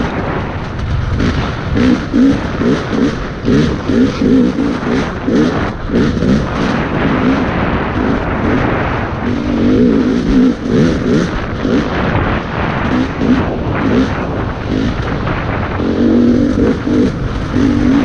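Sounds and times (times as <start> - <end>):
dirt bike engine revving: 0.0 - 18.0
steady rush of noise: 0.0 - 18.0.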